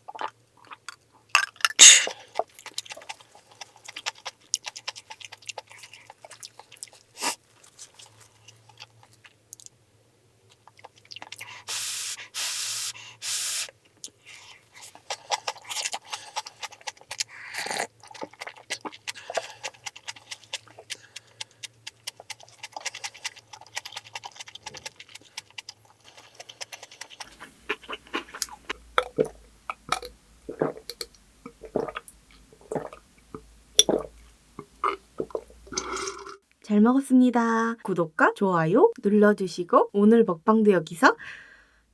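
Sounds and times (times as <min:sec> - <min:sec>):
person chewing food: 0:00.0 - 0:09.8, 0:10.5 - 0:11.7, 0:13.8 - 0:36.4
short loud hiss bursts: 0:11.7 - 0:13.7.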